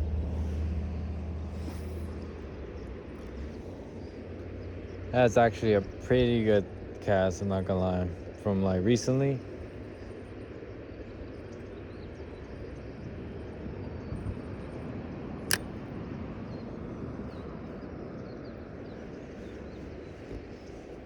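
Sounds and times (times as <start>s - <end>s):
sharp click: 15.5s - 15.7s.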